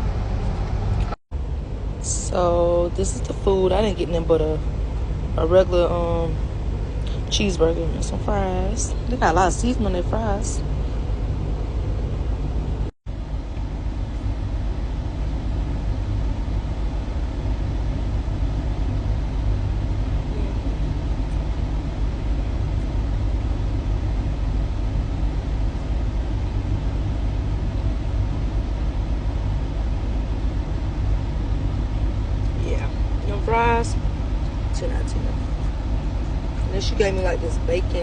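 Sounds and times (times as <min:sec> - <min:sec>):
diesel engine idling: 0:00.0 - 0:38.0.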